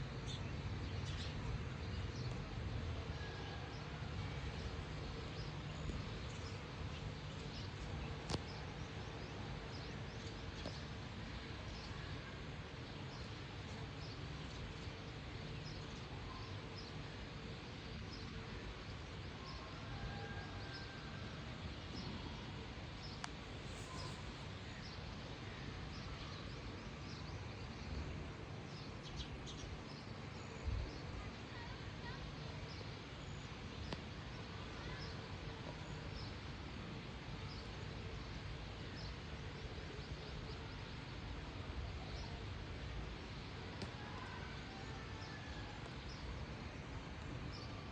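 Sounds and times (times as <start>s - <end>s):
outdoor background hiss: 0.0s - 47.9s
small birds chirping: 4.5s - 12.0s, 22.9s - 25.2s
faint bird chirps: 23.2s - 24.8s.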